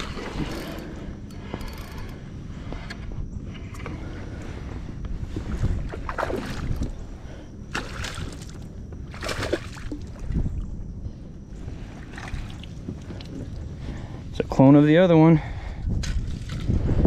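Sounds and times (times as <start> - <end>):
water splashing against kayak: 5.5 - 6.9.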